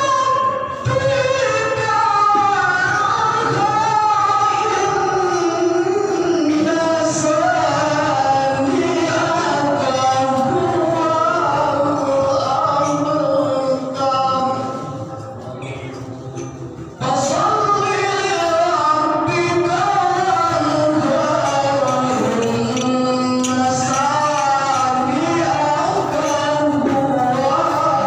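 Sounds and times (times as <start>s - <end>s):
person chanting over loudspeaker: 0.0s - 28.0s.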